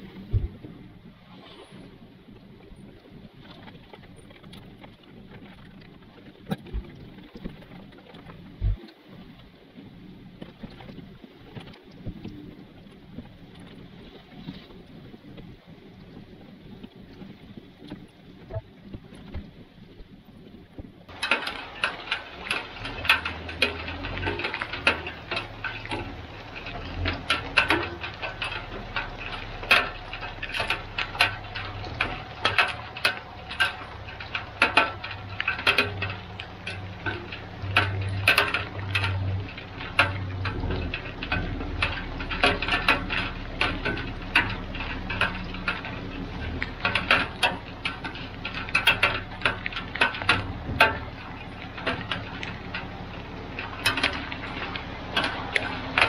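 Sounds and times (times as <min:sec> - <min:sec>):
raindrops ticking on hard surface: 0:01.9 - 0:56.0
truck engine rumble: 0:21.0 - 0:56.0.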